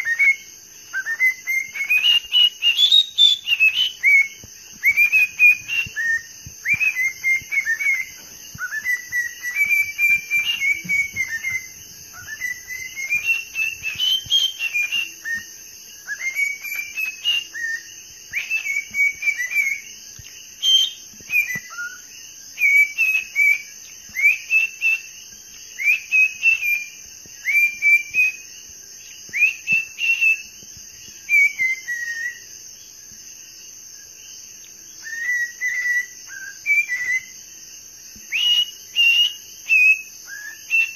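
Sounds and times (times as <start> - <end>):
parrot whistling: 0.0 - 19.8.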